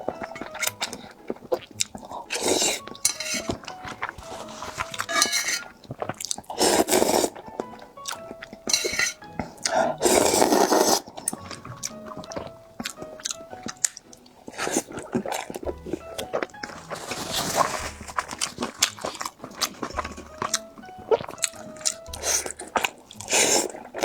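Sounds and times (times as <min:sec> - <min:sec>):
dishes clinking: 0:00.0 - 0:06.2, 0:07.5 - 0:10.2
crunchy bites and chewing: 0:00.0 - 0:24.0
soft background music: 0:00.0 - 0:24.0.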